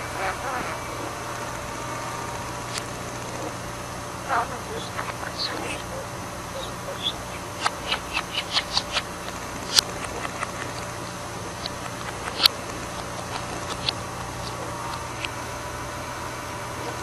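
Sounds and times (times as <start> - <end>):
budgerigar chirping: 0.0 - 1.5, 4.2 - 12.5
steady low hum: 0.0 - 17.0
sharp clicks: 7.0 - 10.9, 11.6 - 15.4.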